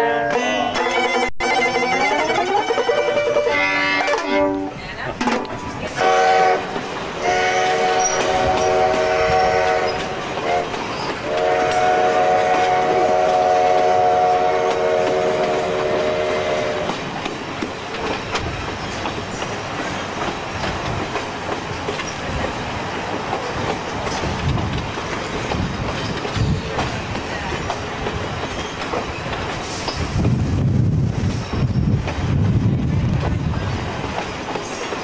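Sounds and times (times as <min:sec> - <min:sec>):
train wheels clickety-clack: 0:00.7 - 0:35.0
train horn chord: 0:02.9 - 0:04.8, 0:06.0 - 0:16.9.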